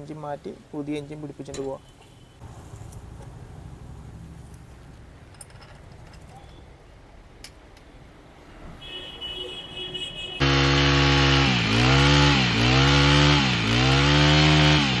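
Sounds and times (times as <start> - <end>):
brush cutter engine running: 10.4 - 15.0.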